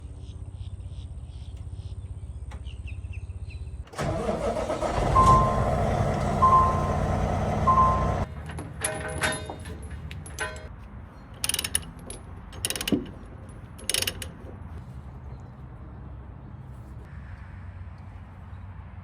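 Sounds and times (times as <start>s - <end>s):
diesel engine running: 4.0s - 8.5s
beeper: 4.8s - 8.2s.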